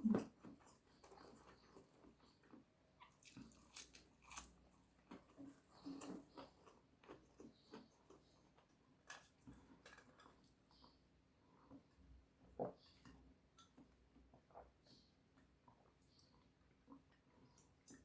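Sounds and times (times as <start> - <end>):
person chewing: 3.1 - 4.5.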